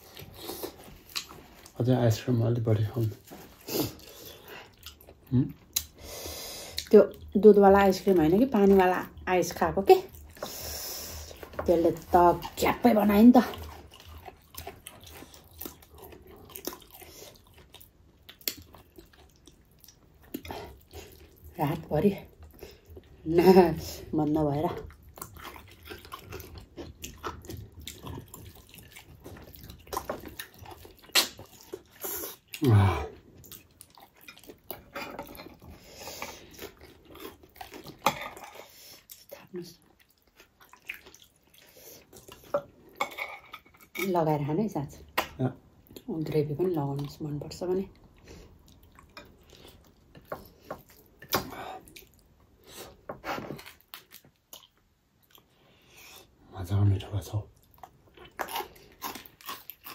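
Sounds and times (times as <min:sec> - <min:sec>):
wet chewing and lip smacks: 0:00.0 - 0:01.8, 0:03.1 - 0:06.0, 0:13.4 - 0:21.6, 0:24.8 - 0:43.0, 0:46.8 - 0:56.4, 0:57.5 - 0:59.9
mouth smacks and clicks: 0:31.0 - 0:32.7
person humming mm: 0:32.6 - 0:33.1.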